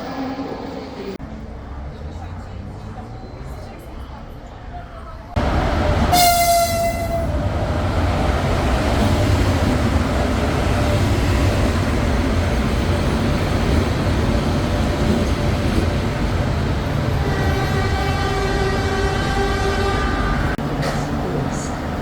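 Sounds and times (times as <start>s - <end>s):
train wheels rumbling on rails: 5.3s - 22.0s.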